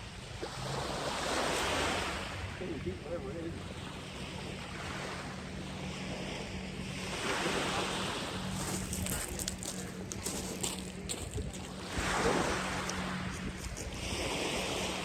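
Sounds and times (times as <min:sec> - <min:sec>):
surf washing onto beach: 0:00.5 - 0:15.0
wind buffeting microphone: 0:05.3 - 0:15.0.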